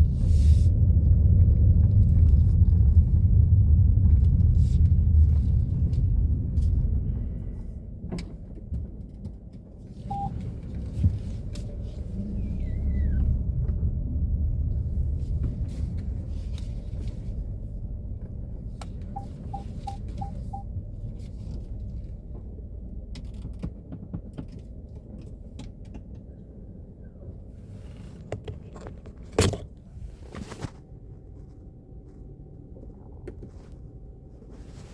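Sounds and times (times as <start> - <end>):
car engine rumble: 0.0 - 34.9
short falling squeak: 12.3 - 13.3.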